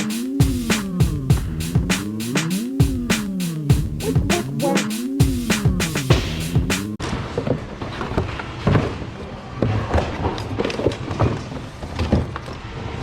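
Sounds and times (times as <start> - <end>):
music track: 0.0 - 7.0.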